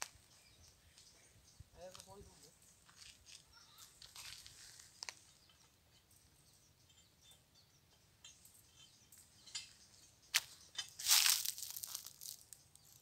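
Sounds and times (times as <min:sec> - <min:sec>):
faint bird chirps: 0:00.1 - 0:02.8, 0:03.4 - 0:11.3
sharp crackles: 0:10.4 - 0:13.0.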